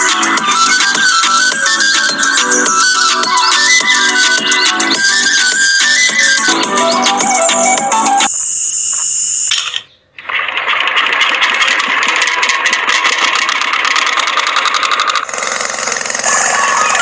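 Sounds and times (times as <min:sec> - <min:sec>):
small motor rattling: 0:10.3 - 0:17.0.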